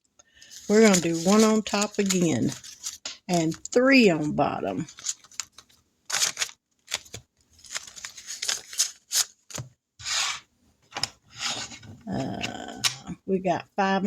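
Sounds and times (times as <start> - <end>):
paper rustling: 0.4 - 13.0.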